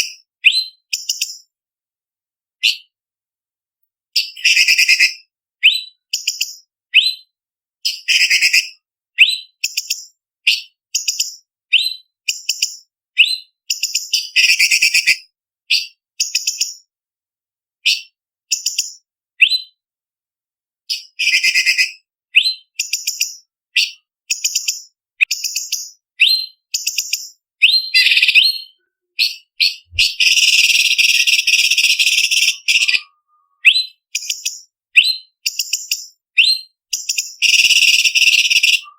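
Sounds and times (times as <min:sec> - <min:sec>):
harsh bird trill: 0:04.2 - 0:07.3, 0:07.9 - 0:12.6, 0:13.2 - 0:16.7, 0:20.9 - 0:38.9
bird whistling high notes: 0:27.6 - 0:34.0, 0:37.4 - 0:38.9.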